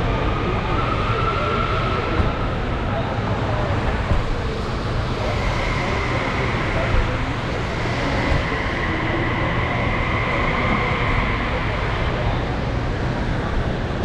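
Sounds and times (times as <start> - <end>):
crowd chatter: 0.0 - 14.0.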